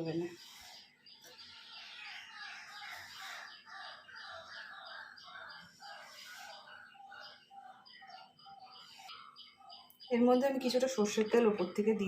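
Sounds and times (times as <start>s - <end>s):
faint bird calls: 0.0s - 10.2s.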